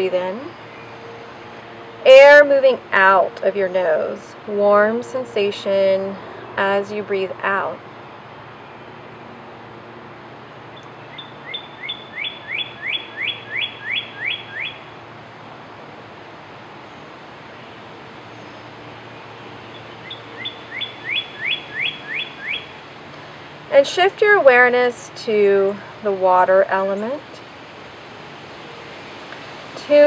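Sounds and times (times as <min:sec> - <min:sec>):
songbird singing: 0:00.0 - 0:15.1, 0:16.8 - 0:30.0
low background hum: 0:17.5 - 0:28.6.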